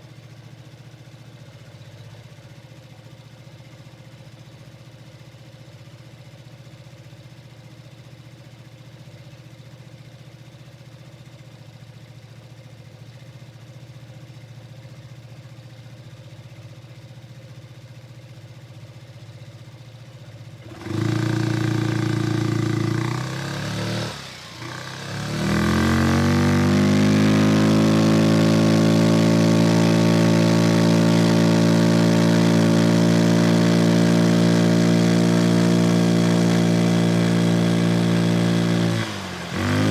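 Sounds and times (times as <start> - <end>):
scooter engine revving: 20.6 - 39.9.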